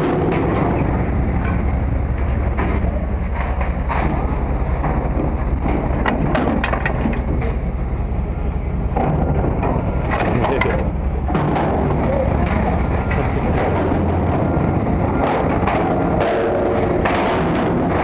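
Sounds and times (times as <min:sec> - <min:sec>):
scrap metal knocking and clattering: 0:00.0 - 0:07.6
low engine rumble: 0:00.0 - 0:18.0.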